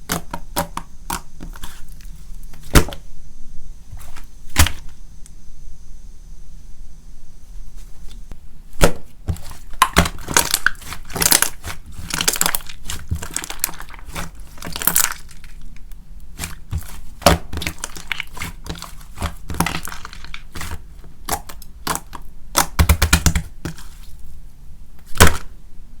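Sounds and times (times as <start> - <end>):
hands squishing sticky slime: 8.8 - 24.2.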